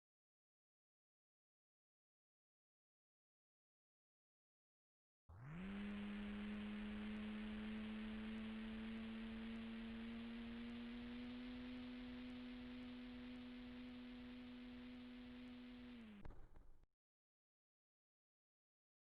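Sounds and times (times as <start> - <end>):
model plane motor humming: 5.3 - 16.7.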